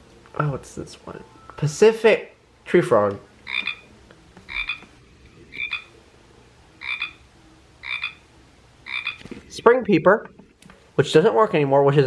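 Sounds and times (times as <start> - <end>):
recorded tree frog croaks: 3.4 - 3.9, 4.5 - 6.0, 6.8 - 9.4.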